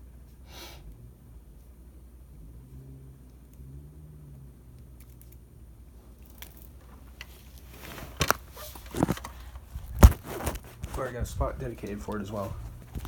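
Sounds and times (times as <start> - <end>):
faint low hum: 0.0 - 13.0
handling rustles: 6.0 - 13.0.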